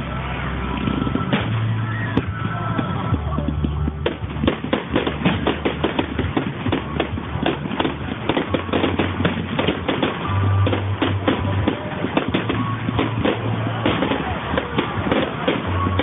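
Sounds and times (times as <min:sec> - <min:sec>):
fireworks crackling and banging: 0:00.0 - 0:16.0.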